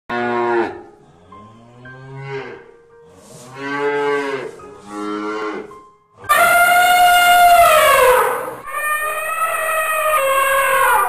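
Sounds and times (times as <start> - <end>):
cattle mooing: 0.1 - 2.7, 3.4 - 5.7.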